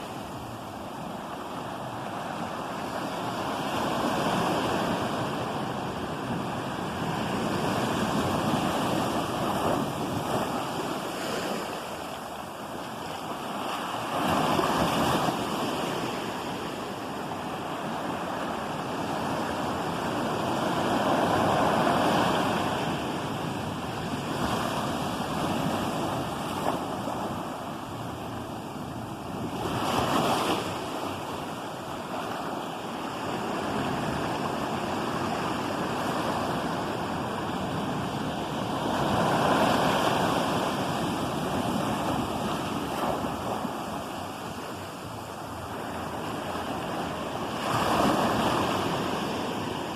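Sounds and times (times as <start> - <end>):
ocean waves breaking on shore: 0.0 - 49.9
wind on microphone: 0.0 - 49.9.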